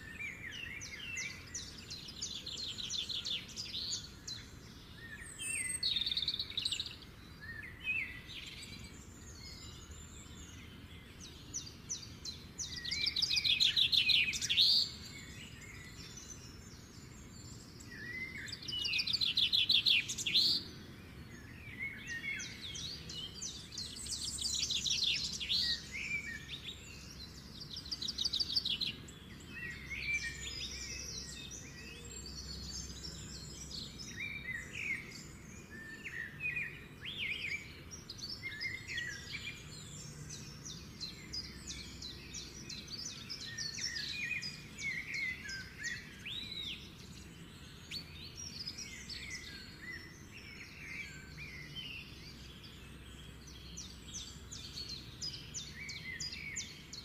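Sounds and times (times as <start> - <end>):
faint low background noise: 0.0 - 57.0
songbirds trilling: 0.0 - 57.0.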